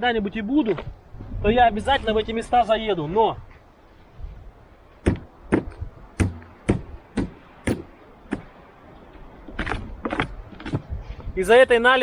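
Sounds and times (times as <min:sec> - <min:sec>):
wooden stick knocking on metal: 0:05.1 - 0:08.5.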